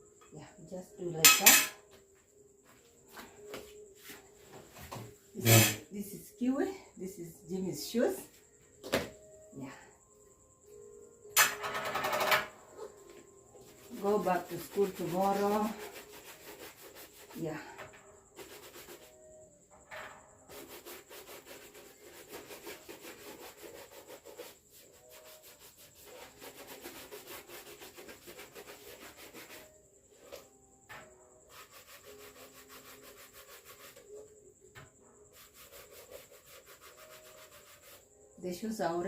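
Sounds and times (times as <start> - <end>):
shoe being rubbed and polished: 3.1 - 5.8, 13.6 - 17.5, 18.4 - 19.2, 20.5 - 30.5, 31.5 - 34.4, 35.3 - 38.2.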